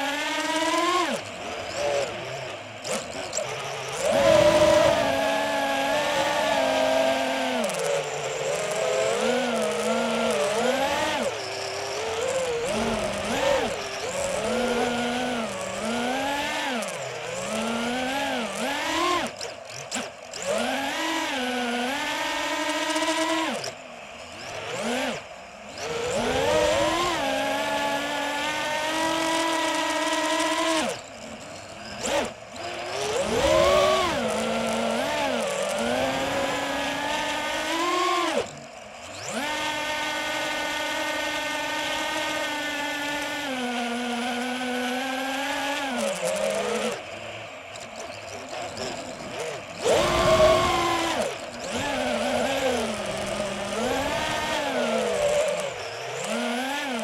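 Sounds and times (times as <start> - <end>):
drone propellers whining: 0.0 - 57.0.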